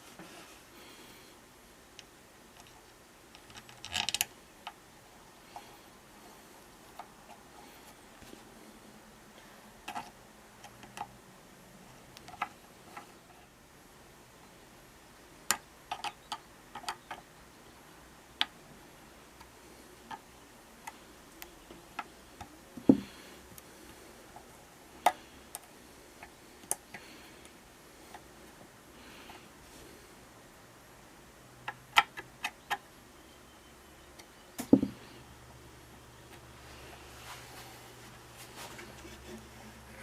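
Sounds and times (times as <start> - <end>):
small tools clicking and tapping: 15.5 - 17.3.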